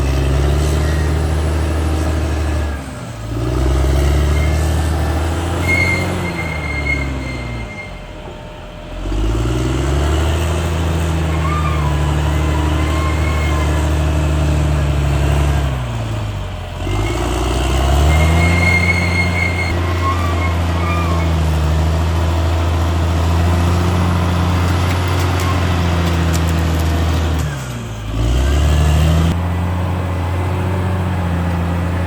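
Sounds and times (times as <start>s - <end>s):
bulldozer diesel engine: 0.0s - 32.0s
high squeals: 0.1s - 2.7s, 4.0s - 9.0s, 11.0s - 14.9s, 16.8s - 21.6s.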